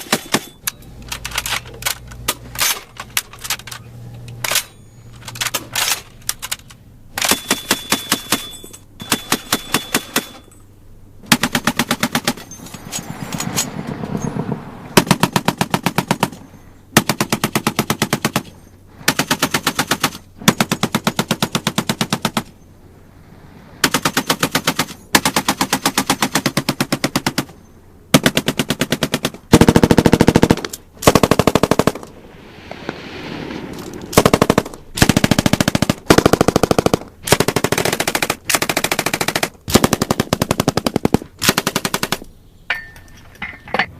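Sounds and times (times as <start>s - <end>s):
machine-gun fire bursts: 28.1s - 32.1s, 34.1s - 42.2s.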